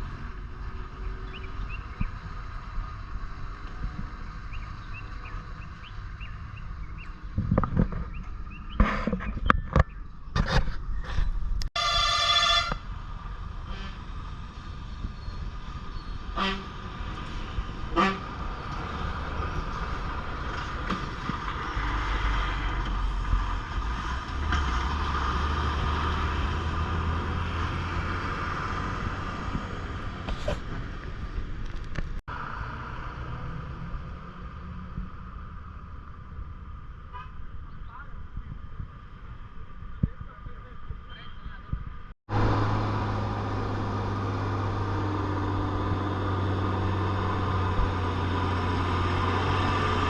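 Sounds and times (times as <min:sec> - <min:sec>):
vehicle horn blaring: 0:11.8 - 0:12.8, 0:16.4 - 0:16.7, 0:17.9 - 0:18.2
lorry diesel engine labouring: 0:42.3 - 0:50.0.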